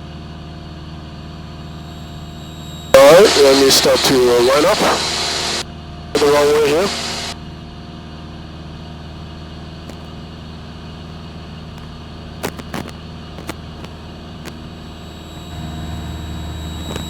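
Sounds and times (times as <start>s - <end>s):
propeller plane engine droning: 1.2s - 7.6s, 14.0s - 17.0s.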